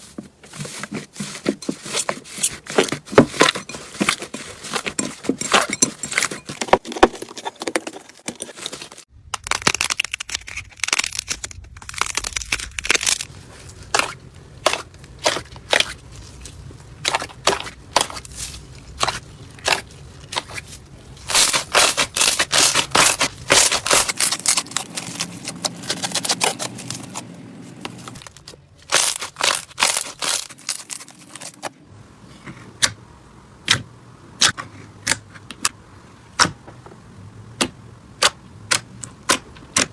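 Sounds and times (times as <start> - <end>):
slime crackling and popping: 9.2 - 13.3.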